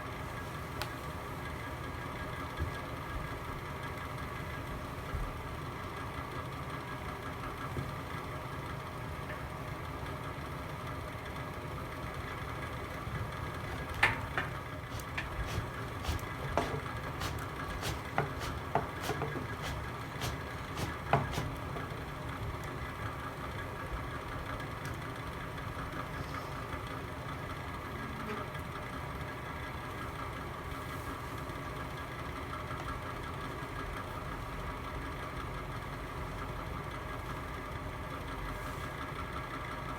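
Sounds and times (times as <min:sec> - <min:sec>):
fire burning in a fireplace: 0:13.1 - 0:22.9.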